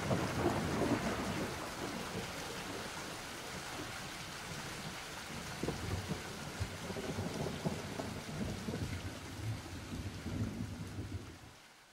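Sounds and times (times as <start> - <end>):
low thunder rumbling: 0.0 - 2.8, 5.6 - 11.4.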